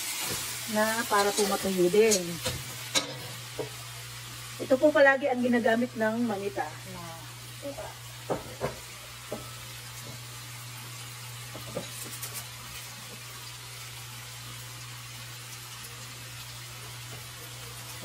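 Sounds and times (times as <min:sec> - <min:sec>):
oil crackles and pops: 0:00.0 - 0:03.8, 0:09.8 - 0:18.0
chicken sizzling in oil: 0:00.0 - 0:18.0.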